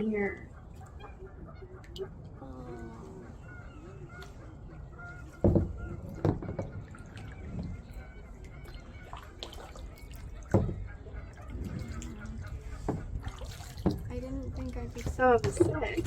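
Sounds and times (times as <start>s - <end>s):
paddle dipping and dripping in water: 0.0s - 16.0s
paddle knocking against kayak: 5.2s - 8.3s, 10.3s - 16.0s.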